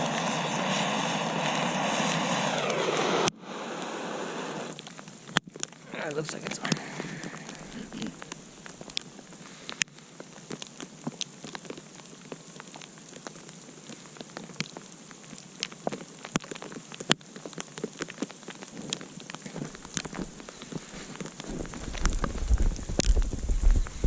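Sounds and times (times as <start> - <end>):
campfire crackling and popping: 0.0 - 24.0
hiss of burning: 0.0 - 24.0.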